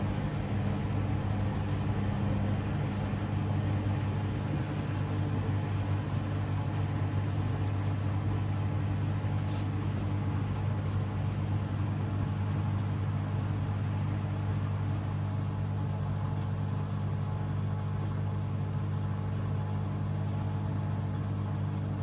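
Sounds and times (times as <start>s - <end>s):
washing machine motor hum: 0.0s - 12.8s.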